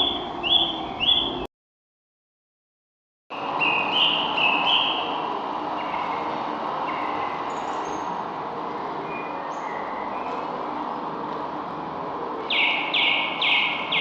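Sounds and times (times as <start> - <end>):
small birds chirping: 0.0 - 1.5, 3.4 - 8.2, 8.8 - 11.1, 12.4 - 14.0.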